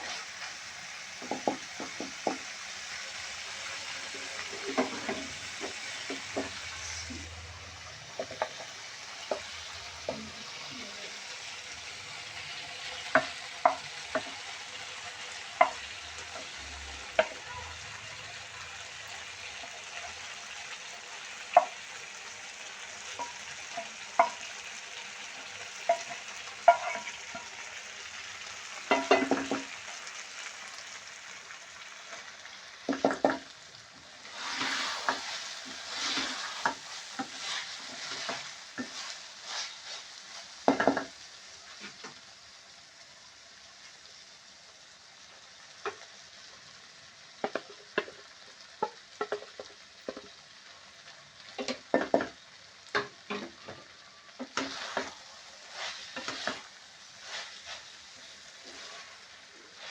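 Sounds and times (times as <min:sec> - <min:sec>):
food sizzling in a pan: 0:00.0 - 0:59.9
metal spoon knocking on a pan: 0:28.9 - 0:29.7.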